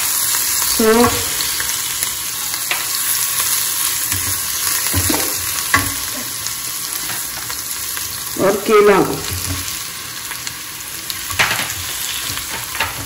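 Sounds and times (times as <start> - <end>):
food sizzling in hot oil: 0.0 - 13.0
spoon knocking against a pan: 4.1 - 6.1.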